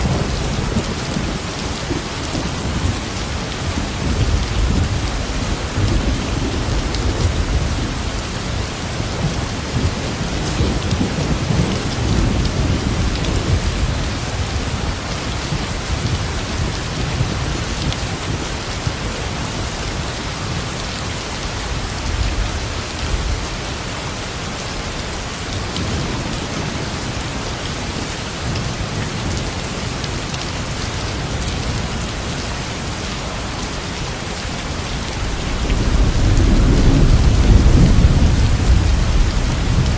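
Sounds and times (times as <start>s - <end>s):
thunder rumbling: 0.0s - 19.8s, 33.3s - 39.9s
heavy rain falling: 0.0s - 39.9s.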